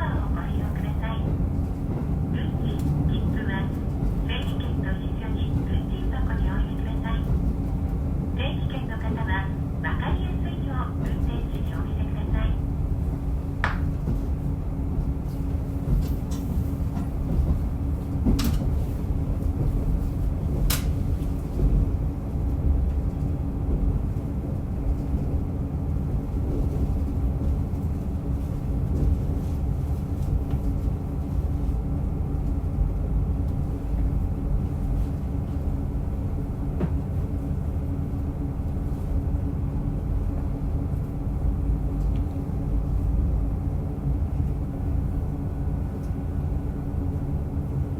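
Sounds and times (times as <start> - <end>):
diesel railcar rumbling on rails: 0.0 - 47.9.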